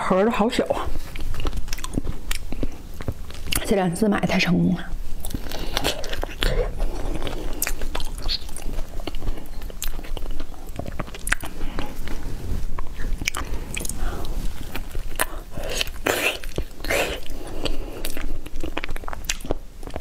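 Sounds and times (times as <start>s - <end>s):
person biting and chewing: 1.0s - 3.6s, 5.2s - 20.0s
mouth clicks and smacks: 5.2s - 12.2s, 12.8s - 20.0s.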